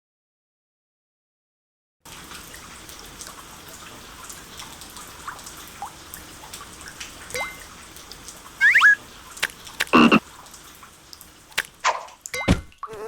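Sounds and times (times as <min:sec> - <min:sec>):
steady rain: 0:02.1 - 0:11.8
water drips: 0:02.1 - 0:12.9
faint rising chirps: 0:08.6 - 0:09.0.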